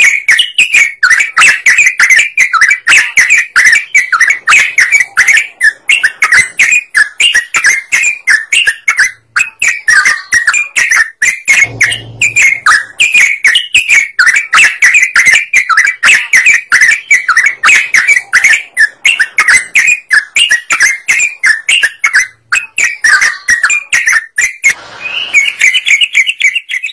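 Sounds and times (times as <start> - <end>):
bird singing bubbling warbles: 0.0 - 26.9.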